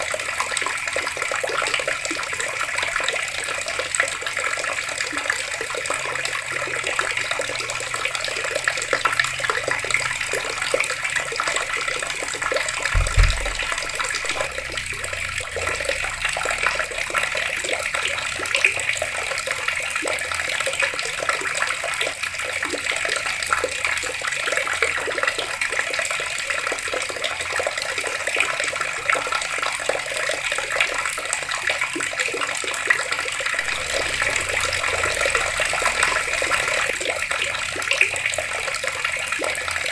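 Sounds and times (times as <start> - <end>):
water running from taps: 0.0 - 39.9
short low thud: 13.0 - 15.8.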